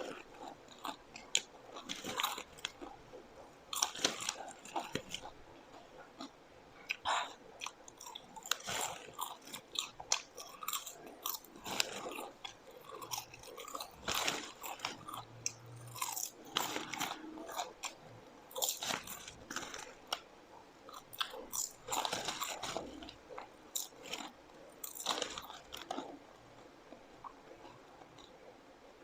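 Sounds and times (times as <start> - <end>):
person chewing crunchy food: 0.0 - 28.5.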